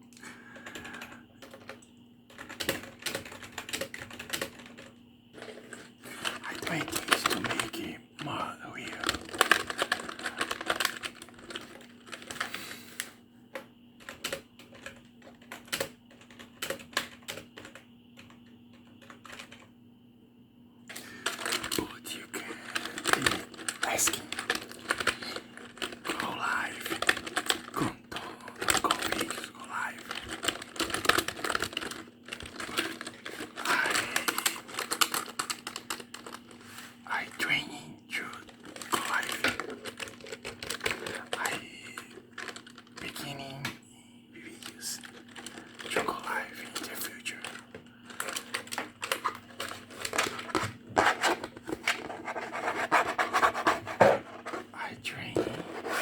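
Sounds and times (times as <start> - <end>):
faint hum: 0.0 - 56.0
fast typing on keyboard: 0.3 - 13.1, 14.0 - 19.7, 20.9 - 43.7, 44.4 - 56.0.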